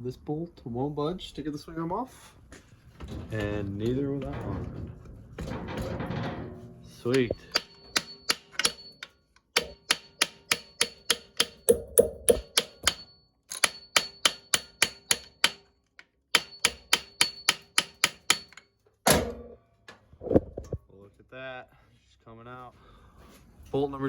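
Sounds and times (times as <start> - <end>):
hammer blows on metal bolt: 7.1 - 15.7.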